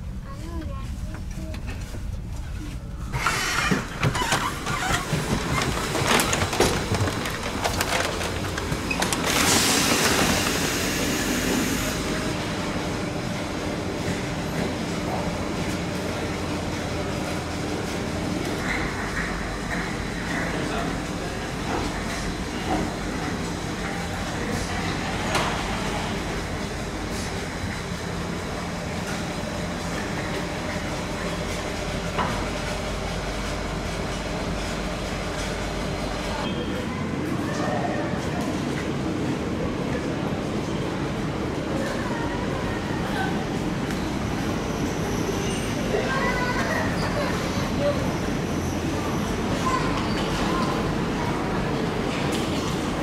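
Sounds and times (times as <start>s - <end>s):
train running hum: 0.0s - 53.0s
loud train hiss: 3.1s - 4.0s, 9.3s - 12.4s.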